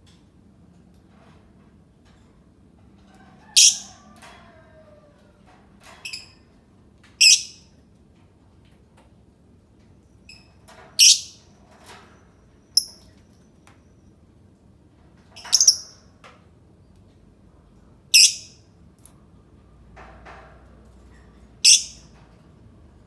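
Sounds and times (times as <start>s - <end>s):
bird shrill calls: 3.6s - 3.9s, 7.2s - 7.6s, 11.0s - 11.4s, 18.2s - 18.5s, 21.7s - 22.0s.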